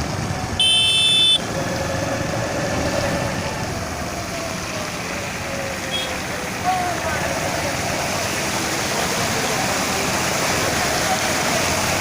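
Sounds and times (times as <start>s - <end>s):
rushing floodwater: 0.0s - 12.0s
vehicle engines rumbling: 0.0s - 12.0s
vehicle horn beep: 0.6s - 1.4s, 5.9s - 6.2s.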